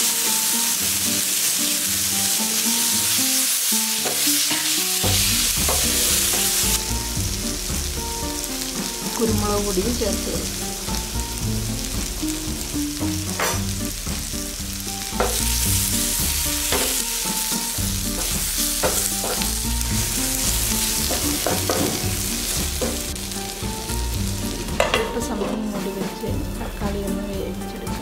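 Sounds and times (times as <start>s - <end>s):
masala sizzling in a frying pan: 0.0s - 28.0s
spatula scraping and tapping pan: 4.0s - 7.0s, 12.0s - 14.2s, 15.0s - 23.2s, 24.6s - 25.8s.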